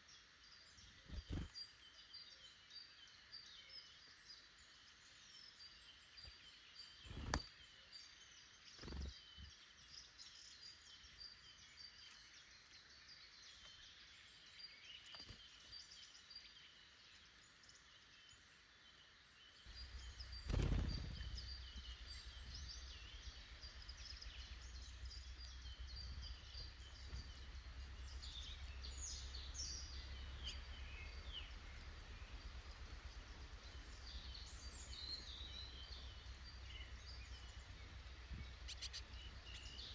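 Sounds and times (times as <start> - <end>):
small birds chirping: 0.0 - 39.9
steady low rumble: 19.7 - 39.9.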